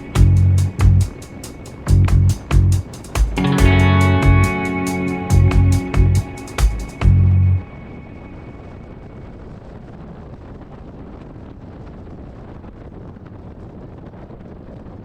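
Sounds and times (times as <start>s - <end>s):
music track: 0.0s - 8.8s
wind rush over microphone: 7.0s - 15.0s.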